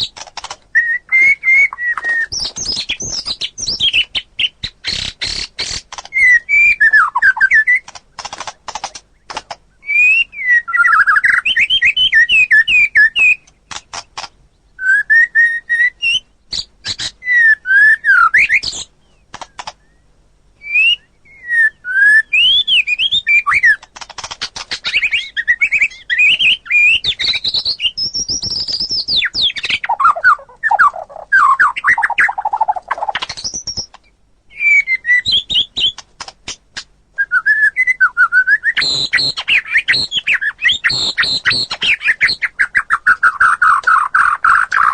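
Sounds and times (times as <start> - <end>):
rapid bird clicking notes: 0.0 - 0.8, 1.8 - 6.4, 7.5 - 9.6, 13.4 - 14.4, 19.3 - 19.9, 23.6 - 26.4, 31.6 - 34.1, 35.8 - 36.9, 38.8 - 44.9
bird singing whistled phrases: 0.7 - 5.5, 6.1 - 7.8, 9.8 - 13.5, 14.8 - 18.9, 19.8 - 23.8, 24.8 - 36.0, 37.2 - 44.9.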